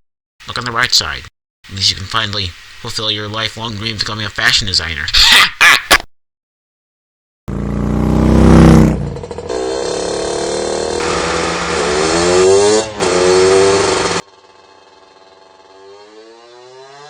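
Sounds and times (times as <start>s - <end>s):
motor vehicle engine revving: 7.5s - 14.3s, 15.1s - 17.0s.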